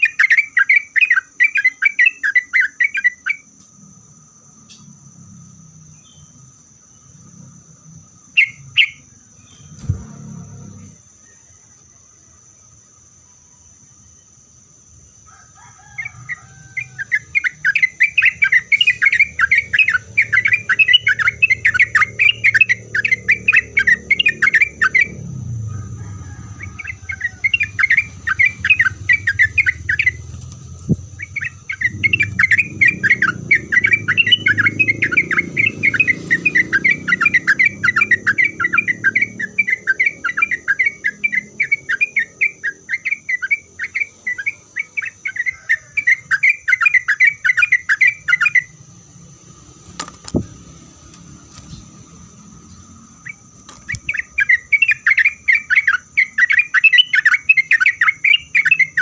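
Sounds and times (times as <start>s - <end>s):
bird chattering song: 0.0s - 3.6s, 8.1s - 11.8s, 15.8s - 25.4s, 26.5s - 48.8s, 51.5s - 59.0s.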